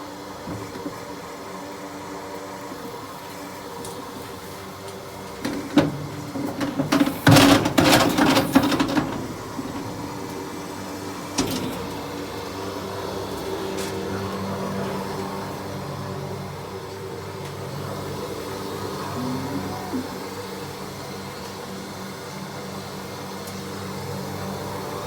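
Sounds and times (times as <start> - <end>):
machine running steadily: 0.0 - 25.0
loud clattering and knocks: 5.3 - 10.6.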